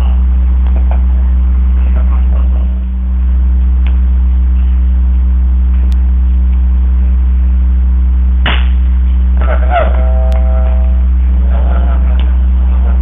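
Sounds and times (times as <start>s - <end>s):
loud electrical hum: 0.0s - 13.0s
sharp electrical crack: 8.4s - 9.6s.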